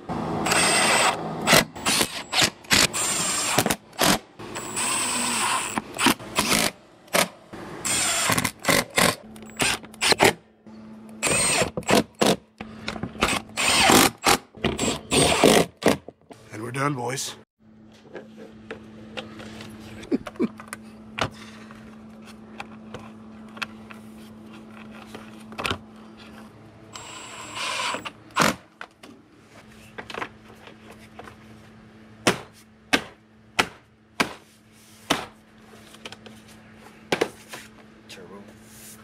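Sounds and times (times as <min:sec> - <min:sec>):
steady low hum: 0:16.2 - 0:39.0.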